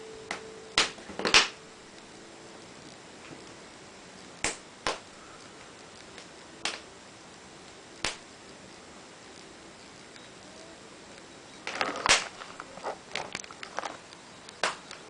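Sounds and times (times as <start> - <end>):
faint steady hiss: 0.0 - 15.0
wood fire crackling: 0.0 - 15.0
sharp pops of burning wood: 0.3 - 2.1, 4.2 - 10.1, 11.6 - 15.0.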